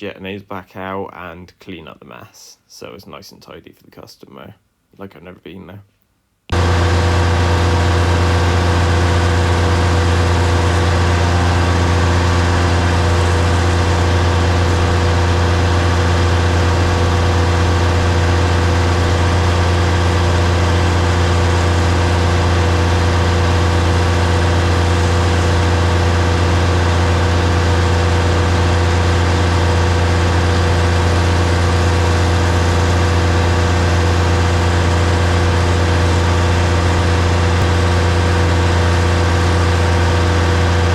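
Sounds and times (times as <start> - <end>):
tanker engine droning: 6.5 - 40.9.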